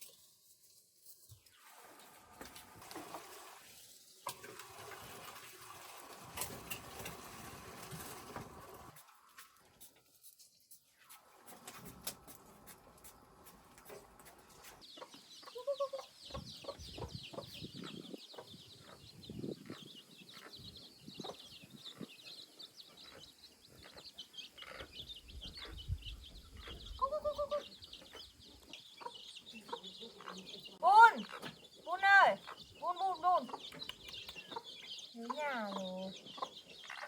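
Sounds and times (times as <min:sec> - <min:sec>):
chicks peeping: 0:11.5 - 0:37.0.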